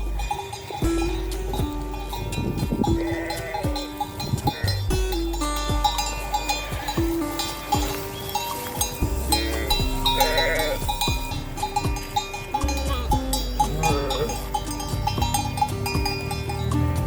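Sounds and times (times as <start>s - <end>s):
sheep bells clanking: 0.0s - 17.0s
sheep bleating: 2.6s - 8.0s, 8.6s - 16.3s.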